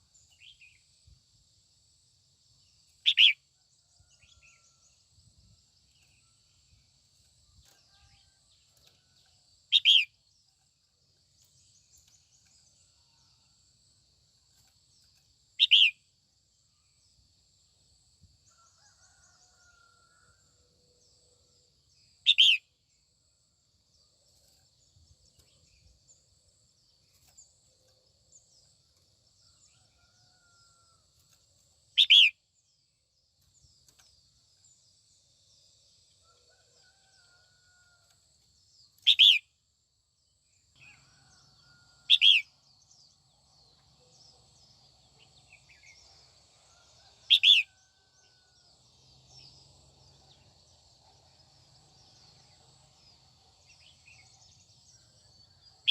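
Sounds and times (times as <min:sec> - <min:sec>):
faint birds twittering: 0:05.9 - 0:13.5, 0:18.4 - 0:22.7, 0:40.8 - 0:55.9.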